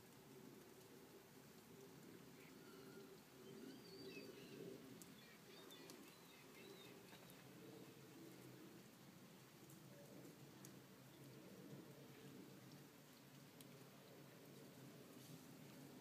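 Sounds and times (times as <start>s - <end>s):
faint bird chirps: 2.3s - 8.6s.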